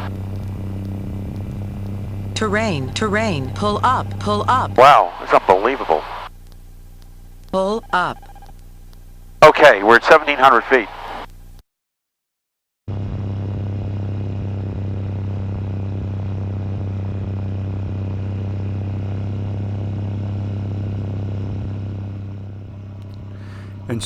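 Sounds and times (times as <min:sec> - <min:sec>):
airplane engine drone in cabin: 0:00.0 - 0:05.4, 0:12.9 - 0:24.0.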